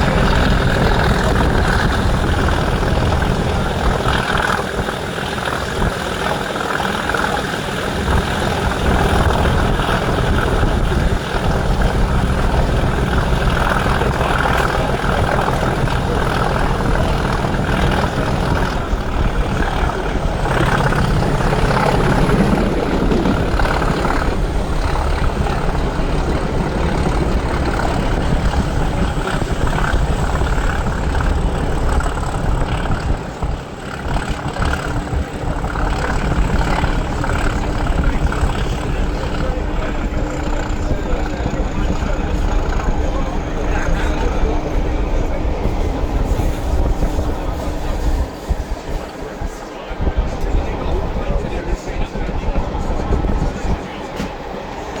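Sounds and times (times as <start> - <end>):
diesel locomotive engine thrashing: 0.0 - 55.0.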